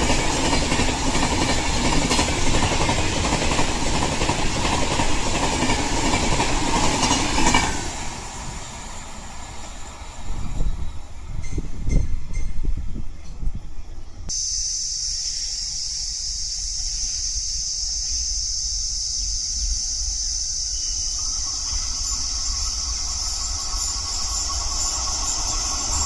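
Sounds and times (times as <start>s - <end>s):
high-pitched insect chorus: 0.0s - 12.8s, 13.9s - 26.0s
passing train: 0.0s - 26.0s.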